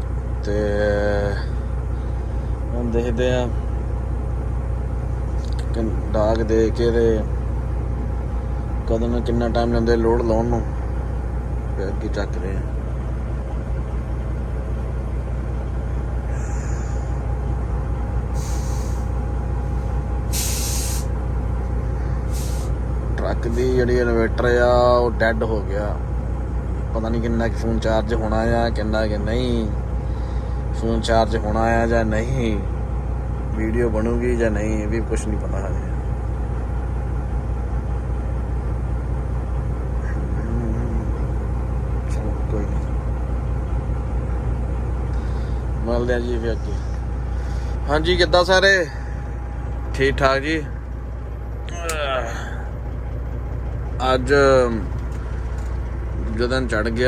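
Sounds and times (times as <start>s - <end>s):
diesel truck engine idling: 0.0s - 57.0s
air brake hisses: 18.3s - 19.3s, 20.2s - 21.2s, 22.0s - 22.8s.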